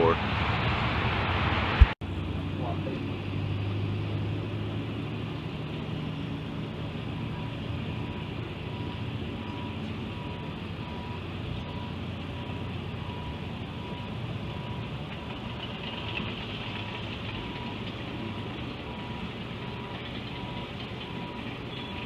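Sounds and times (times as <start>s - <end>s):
car road and engine noise: 0.0s - 22.0s
faint high beep: 21.2s - 22.0s.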